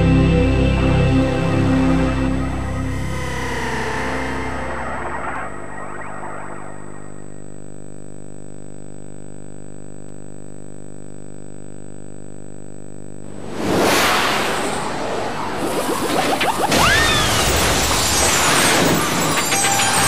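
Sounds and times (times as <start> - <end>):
buzzing hum: 0.0 - 20.0
loud whoosh: 1.7 - 7.4, 13.3 - 17.3.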